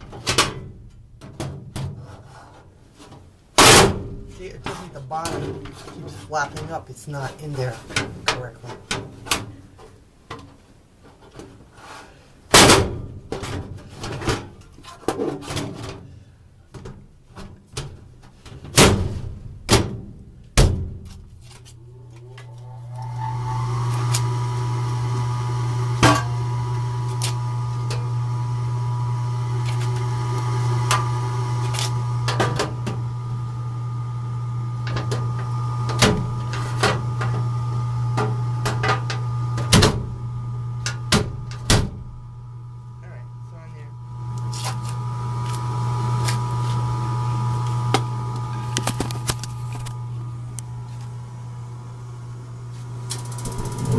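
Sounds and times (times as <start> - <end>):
furnace blower motor humming: 21.8 - 53.9
furnace filter rattling: 52.9 - 53.9.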